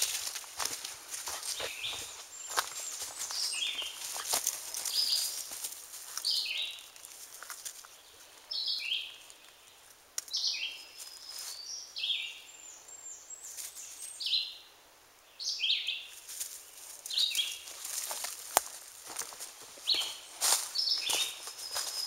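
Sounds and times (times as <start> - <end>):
rustles in dry leaves: 0.0 - 9.9, 10.7 - 11.7, 16.0 - 22.0
songbird singing: 0.0 - 22.0.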